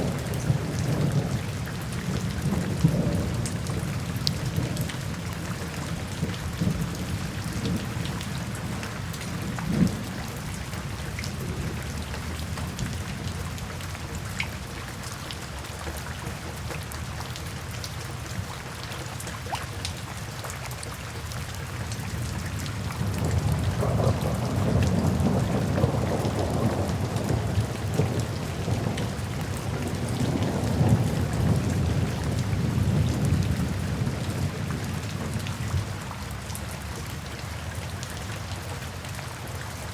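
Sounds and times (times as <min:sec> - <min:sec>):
low rolling thunder: 0:00.0 - 0:13.9, 0:22.1 - 0:36.5
steady rain: 0:00.0 - 0:39.9
raindrop ticks: 0:00.1 - 0:21.0.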